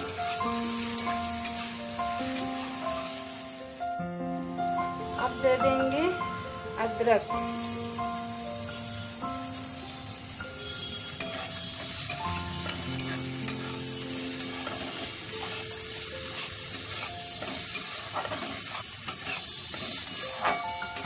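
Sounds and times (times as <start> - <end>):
vegetables sizzling in hot oil: 0.0 - 21.0
utensil scraping a pan: 11.2 - 21.0.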